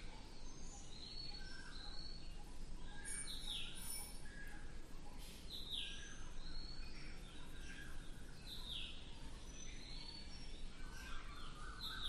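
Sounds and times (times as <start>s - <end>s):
low outdoor background noise: 0.0s - 12.0s
songbirds chirping: 0.0s - 12.0s
downward-sweeping bird calls: 9.6s - 12.0s.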